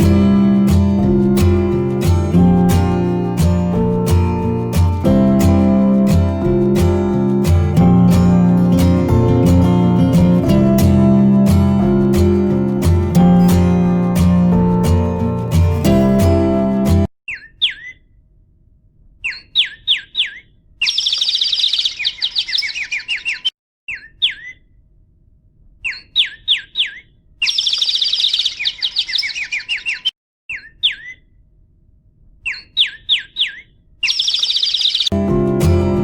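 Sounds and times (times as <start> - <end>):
songbird whistles and trill: 19.3 - 24.6, 25.9 - 31.2, 32.5 - 35.2.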